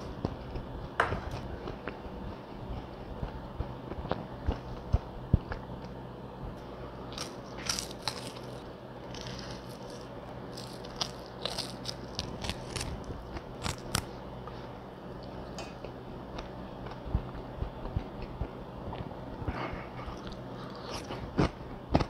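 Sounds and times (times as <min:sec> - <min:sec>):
crunching fried chicken: 0:07.0 - 0:14.2.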